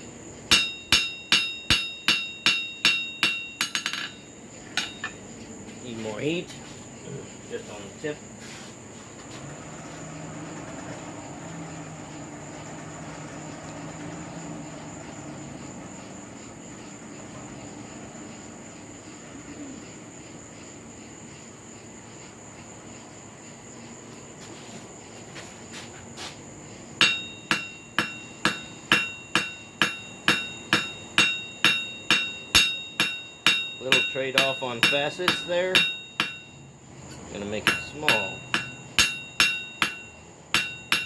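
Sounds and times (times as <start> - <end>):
hammer ringing on anvil: 0.5 - 5.2, 27.0 - 36.7, 37.4 - 41.0.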